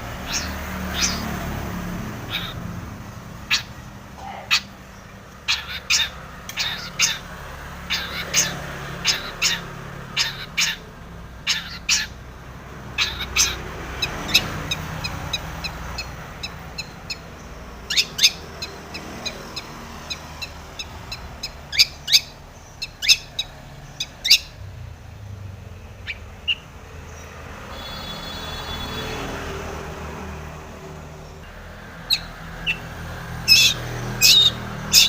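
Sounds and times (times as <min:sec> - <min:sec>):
shrike calling harsh notes: 0:27.7 - 0:29.2.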